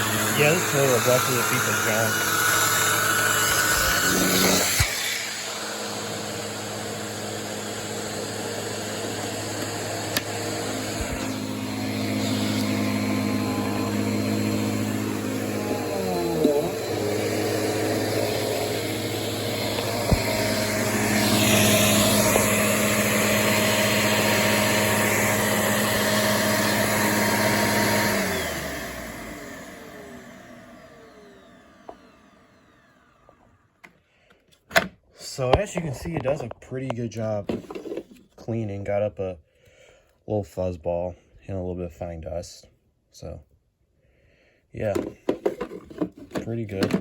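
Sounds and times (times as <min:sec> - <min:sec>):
vacuum cleaner motor running: 0:00.0 - 0:33.8, 0:44.9 - 0:47.0.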